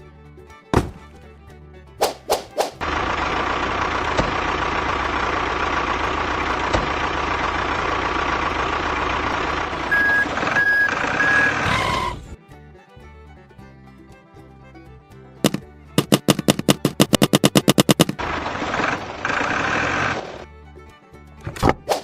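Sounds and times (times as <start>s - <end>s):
truck engine running: 2.8s - 12.4s, 15.4s - 20.5s
reversing alarm beeping: 9.8s - 12.3s.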